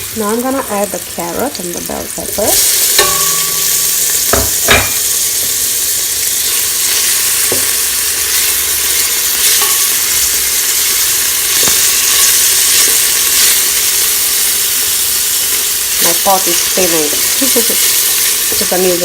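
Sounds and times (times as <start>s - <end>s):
vegetables sizzling in oil: 0.0s - 19.0s
spoon knocking against pot: 3.0s - 3.6s, 4.3s - 5.0s.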